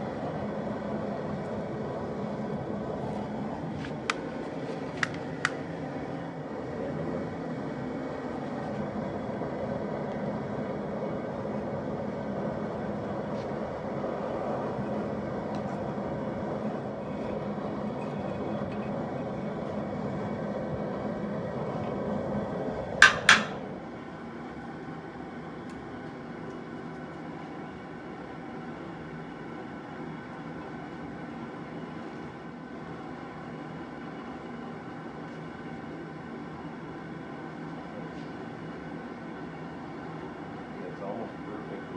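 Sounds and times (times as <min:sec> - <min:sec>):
gas burner rushing: 0:00.0 - 0:25.9
metallic clanks: 0:23.0 - 0:23.7.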